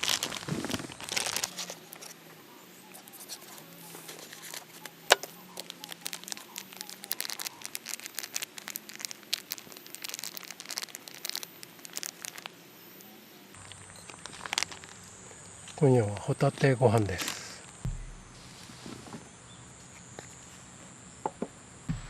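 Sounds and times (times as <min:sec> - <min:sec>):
wood fire crackling and popping: 0:04.2 - 0:12.6.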